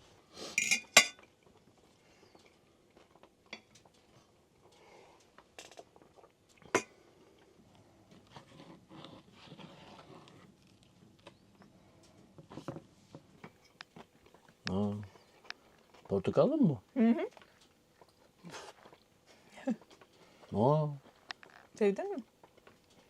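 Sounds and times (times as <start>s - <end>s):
dishes clattering: 0.6s - 1.2s, 6.7s - 6.9s
dishes and cutlery clinking: 0.6s - 1.3s, 6.7s - 6.9s.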